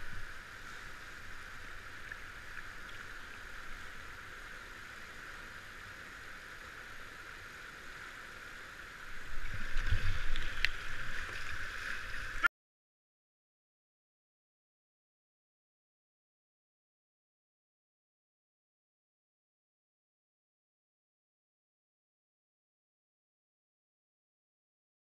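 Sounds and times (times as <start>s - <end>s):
river water splashing: 0.0s - 12.5s.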